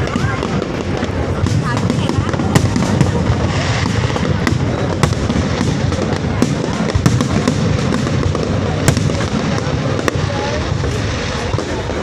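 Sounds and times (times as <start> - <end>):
fireworks sharp bangs: 0.0 - 12.0.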